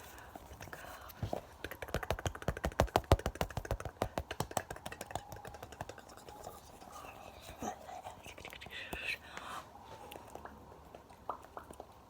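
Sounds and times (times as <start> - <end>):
rapid taps: 1.3 - 6.4.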